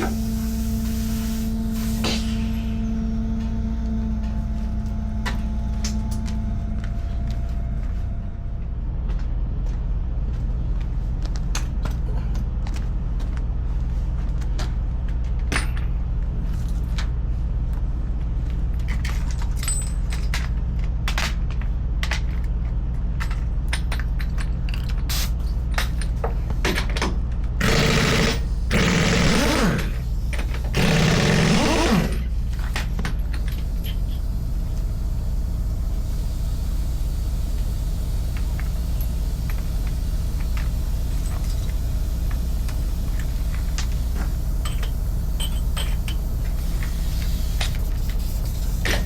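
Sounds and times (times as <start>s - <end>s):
loud rattling burst: 27.6s - 32.4s
engine idling: 27.6s - 47.2s.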